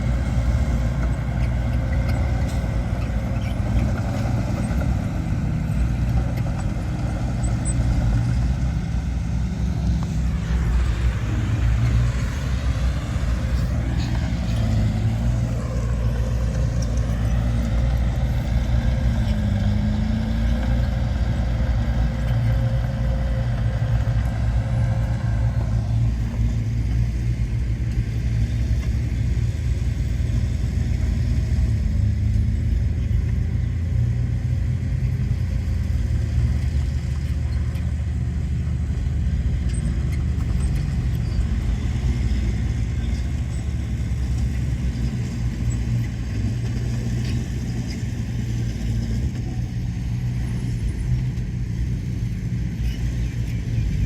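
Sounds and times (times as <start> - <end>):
diesel machinery rumbling: 0.0 - 54.0.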